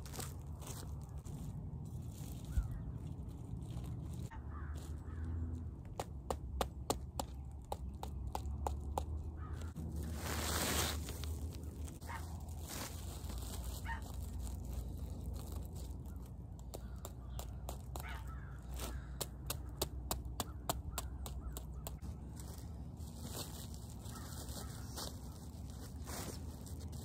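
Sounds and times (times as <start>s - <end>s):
steady low rumble: 0.0s - 6.0s
birds cawing: 4.3s - 5.6s, 9.2s - 9.8s, 16.0s - 22.0s, 24.0s - 25.5s.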